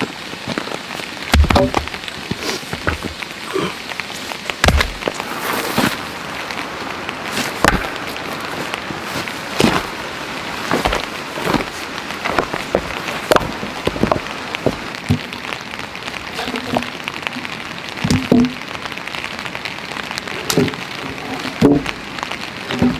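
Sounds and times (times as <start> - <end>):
steady rain: 0.0 - 22.9
heavy drops tapping close by: 4.3 - 15.4.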